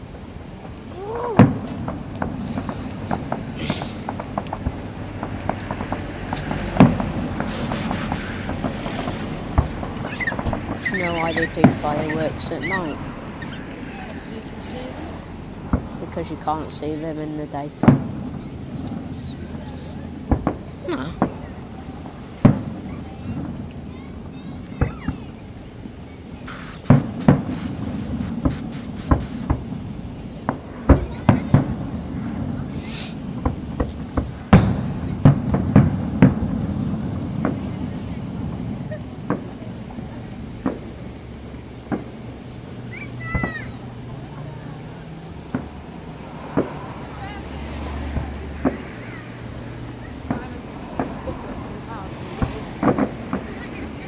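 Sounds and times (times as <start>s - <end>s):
crackling pops: 0.0s - 14.8s, 15.7s - 23.9s, 24.5s - 41.2s, 45.4s - 45.9s, 46.5s - 46.9s, 52.3s - 54.0s
firework bursting with a bang: 0.6s - 43.9s, 45.4s - 49.3s, 50.0s - 54.0s.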